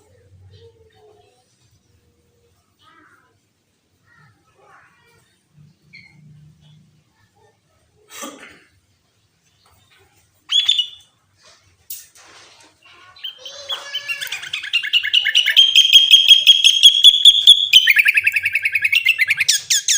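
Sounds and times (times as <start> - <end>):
bird singing rapid notes: 10.5 - 11.0, 13.2 - 19.9.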